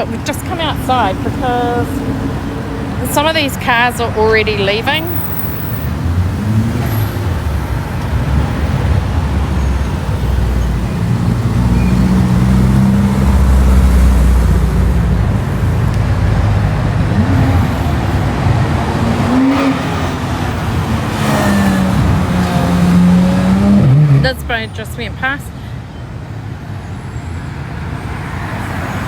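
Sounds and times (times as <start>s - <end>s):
cars driving past: 0.0s - 29.0s.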